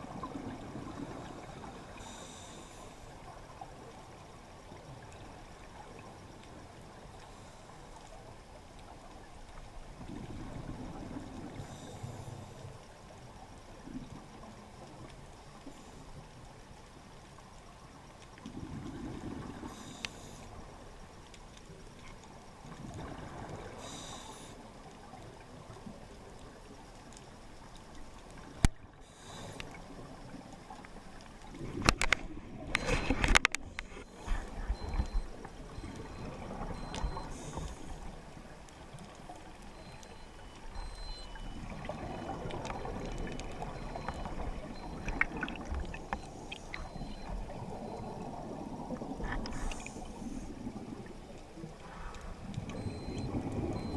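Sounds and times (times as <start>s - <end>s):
muffled underwater bubbling: 28.5s - 53.9s.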